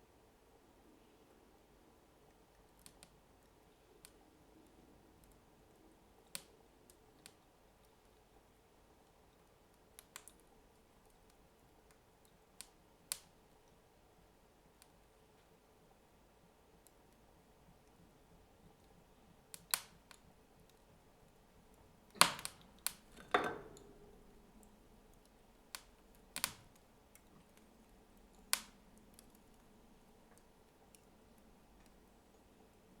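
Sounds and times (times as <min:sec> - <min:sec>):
wood fire burning: 0:02.3 - 0:33.0
sharp pops and cracks of logs: 0:22.2 - 0:23.3, 0:25.2 - 0:27.2, 0:28.5 - 0:29.4.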